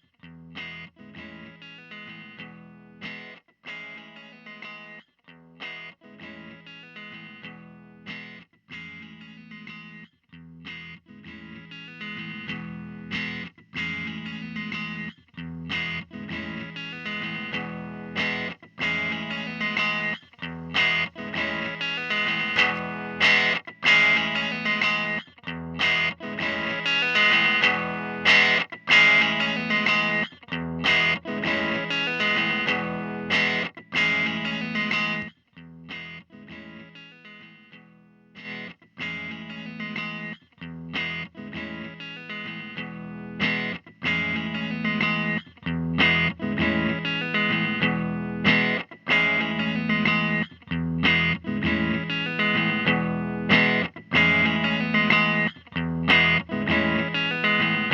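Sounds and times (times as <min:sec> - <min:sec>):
electric guitar strumming chords: 0:00.2 - 0:57.9.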